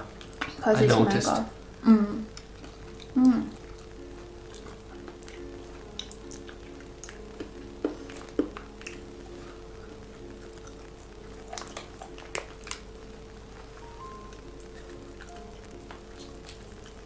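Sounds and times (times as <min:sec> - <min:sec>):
soft background music: 0:00.0 - 0:17.0
mouth chewing clicks and smacks: 0:02.3 - 0:09.0, 0:10.1 - 0:12.9.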